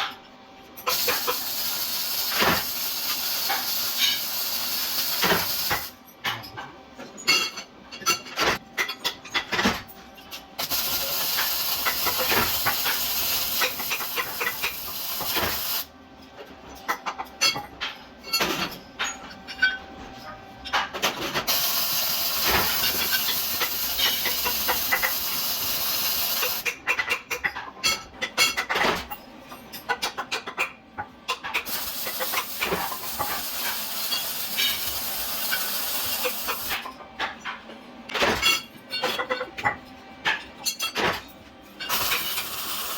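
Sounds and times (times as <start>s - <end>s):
workshop tool hissing: 0.9s - 5.9s, 10.6s - 15.9s, 21.5s - 26.6s, 31.7s - 36.8s, 41.9s - 42.9s.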